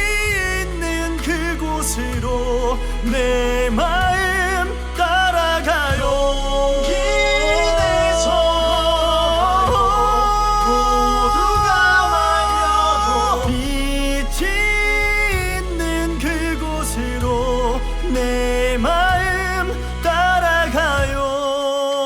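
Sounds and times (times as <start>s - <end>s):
orchestral pop backing track: 0.0s - 22.0s
solo voice singing with vibrato: 6.0s - 14.3s.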